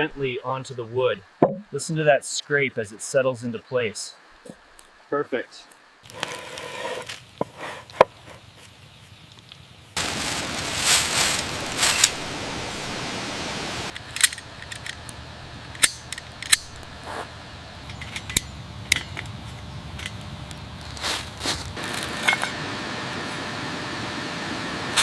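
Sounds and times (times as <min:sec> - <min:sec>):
rough scraping of stone: 0:06.1 - 0:08.4.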